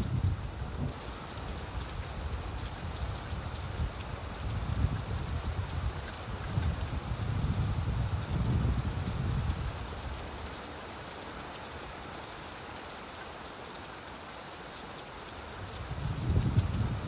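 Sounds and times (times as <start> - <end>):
low rumble of thunder: 0.0 - 1.0, 1.8 - 10.2, 15.8 - 17.0
steady rain: 0.0 - 17.0.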